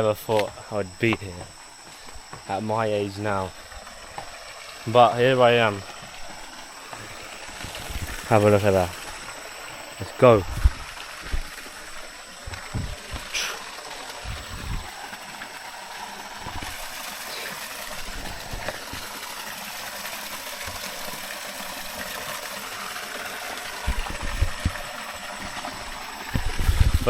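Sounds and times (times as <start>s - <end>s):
small waterfall rushing: 1.5s - 27.0s
dull low thumps: 10.4s - 11.6s, 12.4s - 13.4s, 14.2s - 14.9s.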